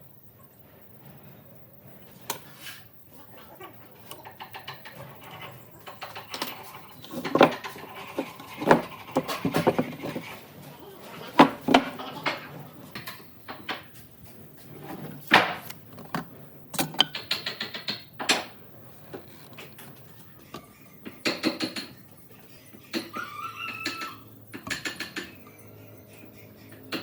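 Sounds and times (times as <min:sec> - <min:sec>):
tools and wood clicking and knocking: 0:04.0 - 0:10.4, 0:11.4 - 0:14.0, 0:14.7 - 0:22.1, 0:22.9 - 0:25.4, 0:26.8 - 0:27.0.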